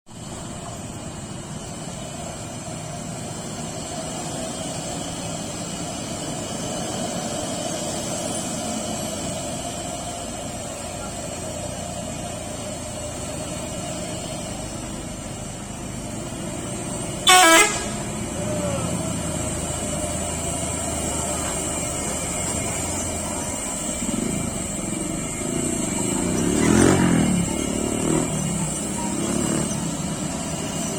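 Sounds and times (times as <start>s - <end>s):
heavy truck running: 0.1s - 30.9s
truck horn blast: 17.1s - 18.4s.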